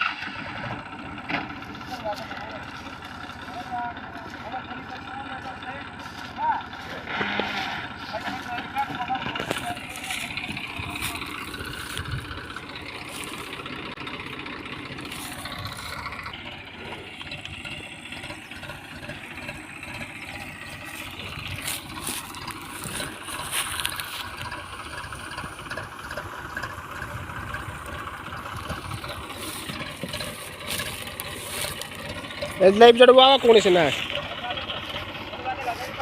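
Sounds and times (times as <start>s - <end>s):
clunks: 0.0s - 36.0s
tractor diesel engine running: 0.0s - 36.0s.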